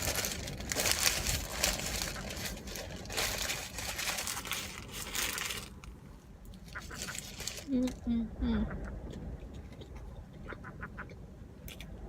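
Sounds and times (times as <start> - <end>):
paper wrapper crinkling: 0.0 - 8.0.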